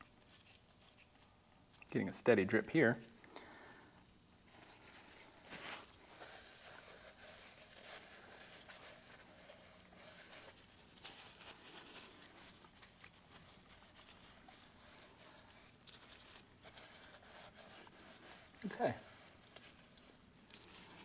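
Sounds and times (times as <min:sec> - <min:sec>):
faint rustling: 0:00.0 - 0:21.0.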